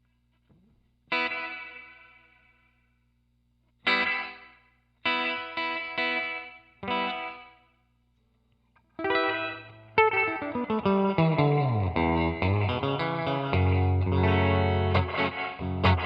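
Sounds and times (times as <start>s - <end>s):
low amp hum: 0.0s - 16.0s
electric guitar chords with reverb: 3.9s - 7.6s, 9.0s - 16.0s.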